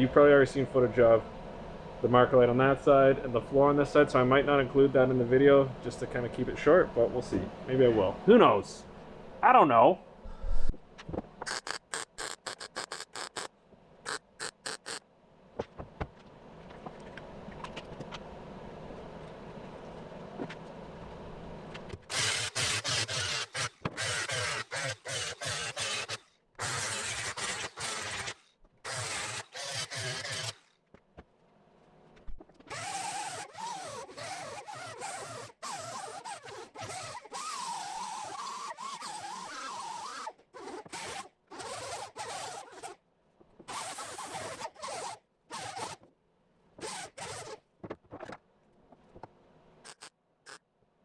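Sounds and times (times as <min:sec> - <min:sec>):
wavering welding whine: 0:11.5 - 0:13.5, 0:14.1 - 0:15.0
welder crackling hiss: 0:11.5 - 0:13.5, 0:14.1 - 0:15.0.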